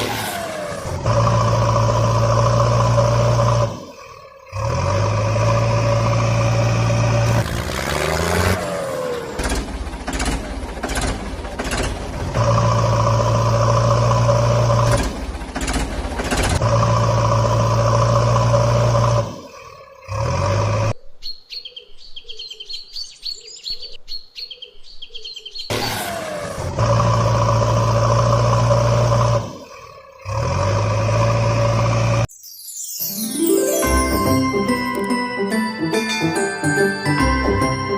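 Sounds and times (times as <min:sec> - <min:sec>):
high bird chirping: 0:32.3 - 0:33.9.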